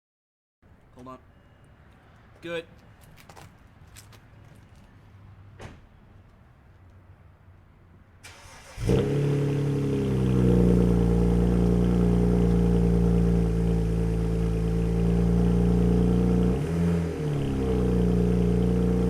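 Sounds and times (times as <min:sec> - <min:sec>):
car engine cranking: 0:08.2 - 0:19.0
car engine idling: 0:08.2 - 0:19.0.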